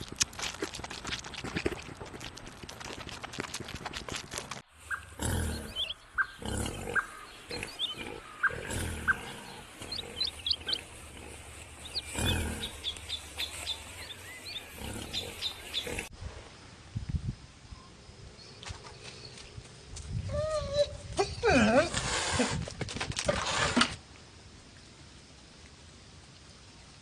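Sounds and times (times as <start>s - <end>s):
small birds chirping: 0.0s - 16.1s.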